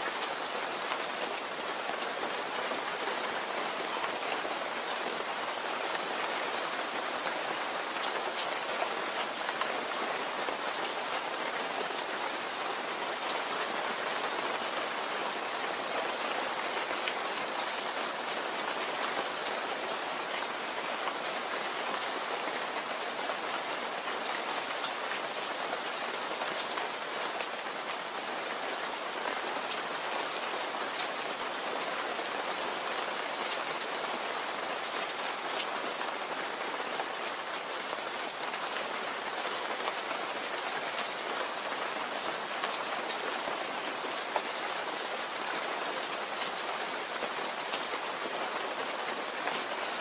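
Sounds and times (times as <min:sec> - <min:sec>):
rain pattering on a surface: 0:00.0 - 0:50.0.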